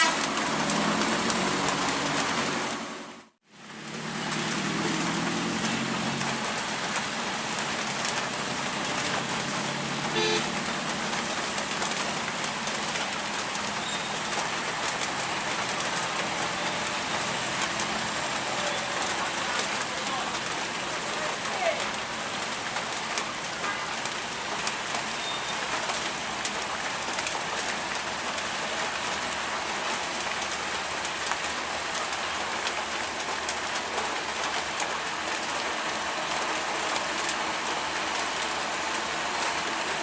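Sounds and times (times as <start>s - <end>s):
heavy rain: 0.0s - 40.0s
truck engine running: 0.0s - 40.0s
short horn toot: 10.1s - 10.5s.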